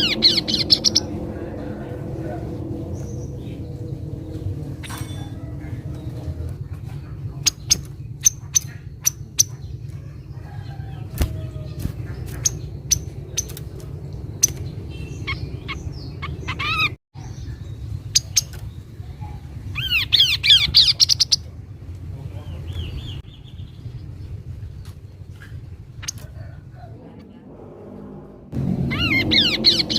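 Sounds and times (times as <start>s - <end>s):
bird chirping: 0.0s - 1.3s, 7.3s - 21.5s, 28.8s - 29.9s
descending bird trill: 0.0s - 5.9s, 26.1s - 29.9s
steady low rumble: 0.0s - 20.7s, 21.3s - 29.9s.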